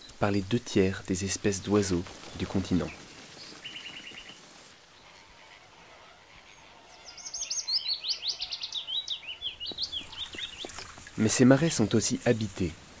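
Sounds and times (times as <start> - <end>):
faint outdoor ambience: 0.0 - 13.0
birds calling: 1.3 - 12.7.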